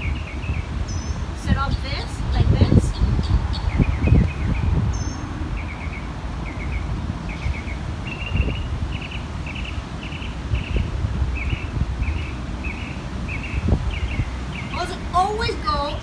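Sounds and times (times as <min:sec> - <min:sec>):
small bird chirping: 0:00.0 - 0:01.9.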